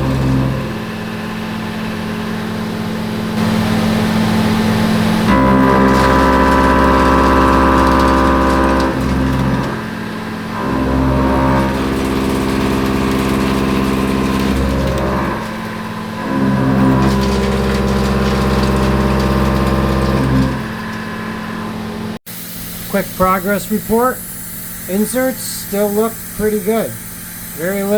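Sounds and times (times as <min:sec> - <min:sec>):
milling cutter cutting steel: 0:00.0 - 0:01.1, 0:04.5 - 0:22.1.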